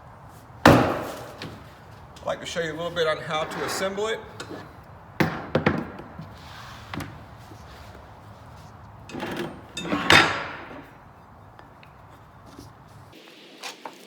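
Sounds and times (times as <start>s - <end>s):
parts knocking: 0.2s - 13.1s
scrape: 3.2s - 4.7s, 6.3s - 8.7s
ringing clunk: 9.0s - 11.7s.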